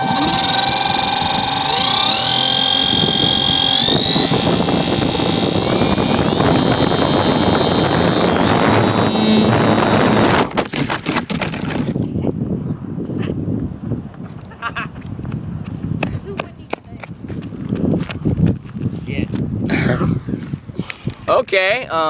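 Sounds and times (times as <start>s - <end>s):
model plane motor whining: 0.0s - 12.0s
wind rushing: 2.1s - 10.8s
plane crashing with hard knocks: 2.2s - 12.0s.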